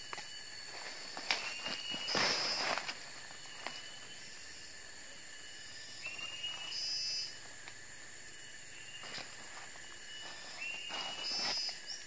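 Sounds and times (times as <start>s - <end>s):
insects and leaves hissing: 0.0s - 12.0s
small birds whistling: 1.3s - 4.6s, 5.6s - 7.4s, 8.7s - 12.0s.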